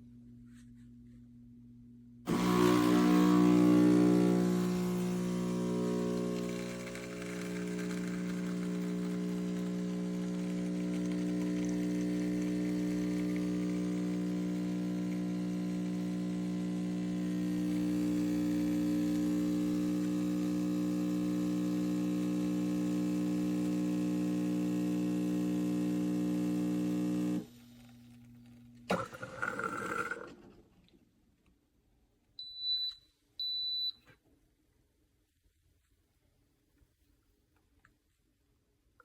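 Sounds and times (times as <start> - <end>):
espresso machine pump humming: 2.3 - 30.3.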